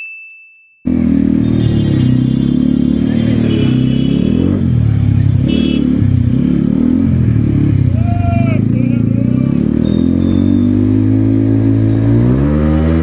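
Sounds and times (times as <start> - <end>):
ringing ding: 0.0 - 0.8
motorcycle engine revving: 0.9 - 13.0.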